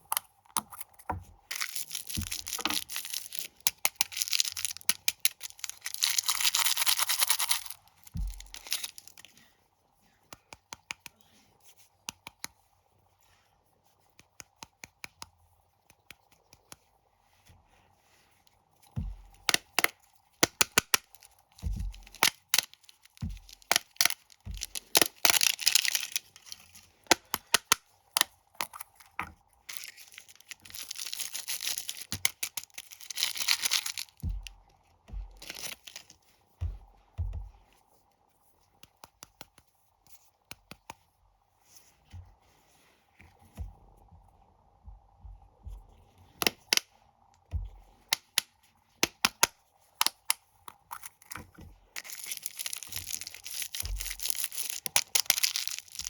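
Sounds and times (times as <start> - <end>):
soft thumps of packets: 1.1 - 3.5, 7.6 - 9.1, 21.1 - 26.2, 29.7 - 37.6, 51.5 - 56.0
plastic wrappers crinkling: 1.5 - 9.3, 19.6 - 36.2, 52.0 - 56.0
wrapper tearing rustle: 1.5 - 9.3, 21.0 - 26.7, 29.7 - 34.3, 35.3 - 36.2, 52.0 - 56.0.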